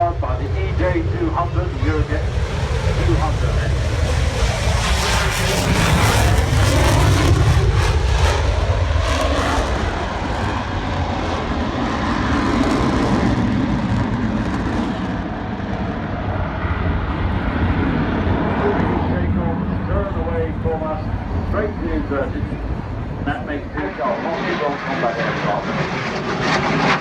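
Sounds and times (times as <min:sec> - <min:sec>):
jet engine roaring: 0:00.0 - 0:27.0.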